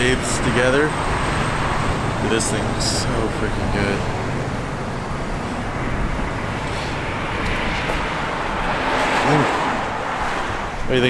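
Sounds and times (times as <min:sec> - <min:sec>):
road traffic rush: 0:00.0 - 0:11.0.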